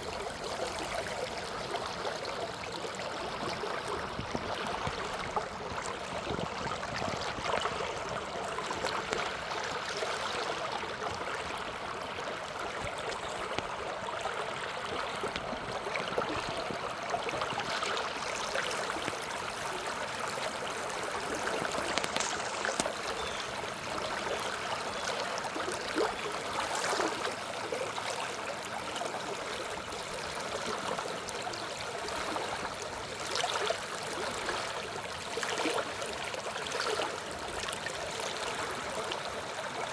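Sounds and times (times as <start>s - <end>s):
water rushing: 12.2s - 28.8s.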